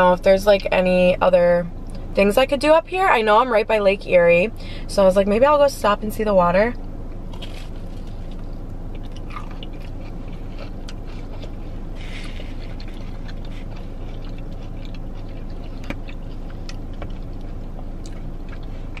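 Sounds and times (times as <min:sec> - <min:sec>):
steady low hum: 0:00.0 - 0:19.0
person chewing food: 0:07.2 - 0:19.0.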